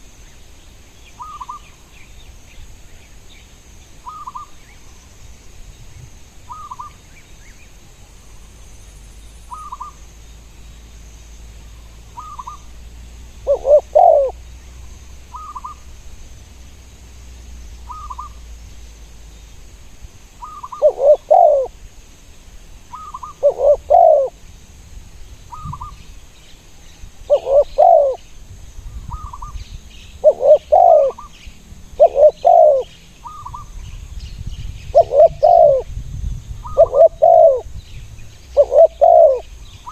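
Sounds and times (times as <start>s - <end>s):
doves cooing: 13.4s - 14.5s, 20.4s - 21.8s, 22.9s - 24.4s, 27.3s - 28.2s, 30.2s - 31.4s, 32.0s - 33.7s, 34.9s - 35.9s, 36.6s - 37.7s, 38.5s - 39.9s.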